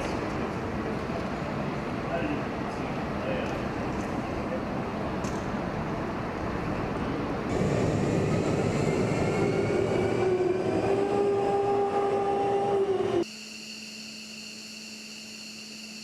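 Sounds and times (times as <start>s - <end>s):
jet engine whining rush: 7.4s - 13.3s.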